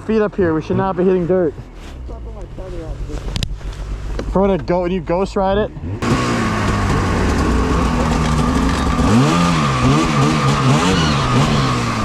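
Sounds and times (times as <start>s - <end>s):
snowmobile engine revving: 5.1s - 12.0s.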